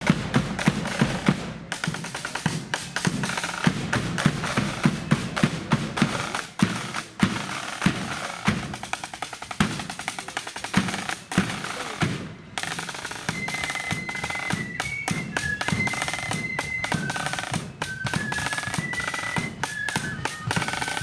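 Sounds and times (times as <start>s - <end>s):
bass drum beat: 0.0s - 9.0s
snare drum rolls: 0.0s - 21.0s.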